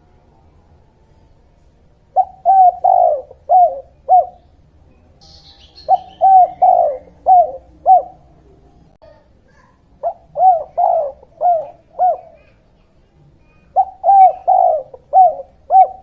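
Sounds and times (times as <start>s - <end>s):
faint high bird chirp: 0.4s - 16.0s
dove cooing: 2.1s - 4.5s, 5.2s - 8.7s, 10.0s - 12.8s, 13.5s - 16.0s.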